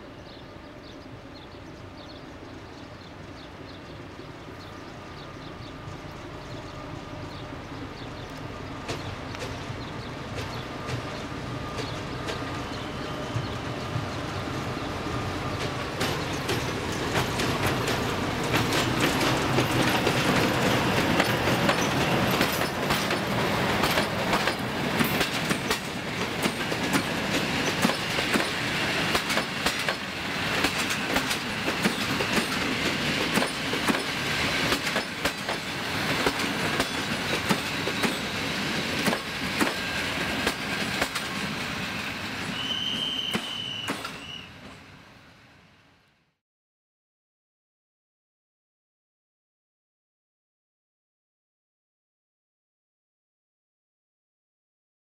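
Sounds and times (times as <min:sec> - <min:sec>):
diesel train rolling past: 0:00.0 - 0:46.2
wheels clattering over rail joints: 0:16.0 - 0:30.0
faint high squeal: 0:42.5 - 0:44.7.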